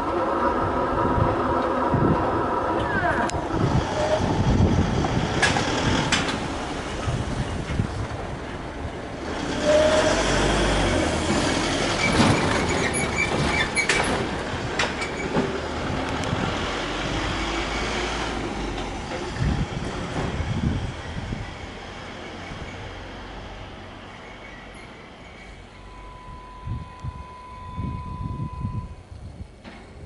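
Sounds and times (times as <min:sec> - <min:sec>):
wheels clacking over rail joints: 0:00.0 - 0:23.3
train rumbling: 0:00.0 - 0:30.0.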